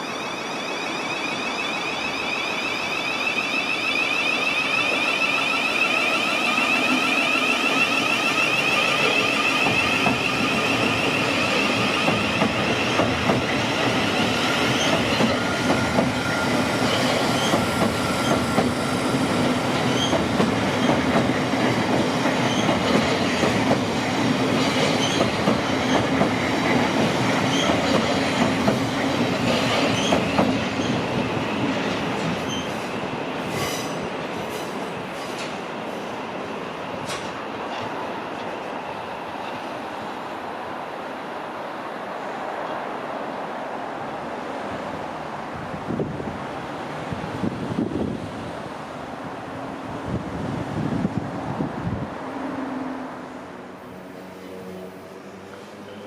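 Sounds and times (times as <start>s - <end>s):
train wheels squealing: 0.0s - 21.2s, 22.2s - 23.5s, 24.6s - 26.2s, 27.4s - 28.4s, 29.4s - 36.1s
train wheels clicking over rail joints: 6.5s - 16.2s, 24.5s - 31.3s, 37.0s - 37.9s.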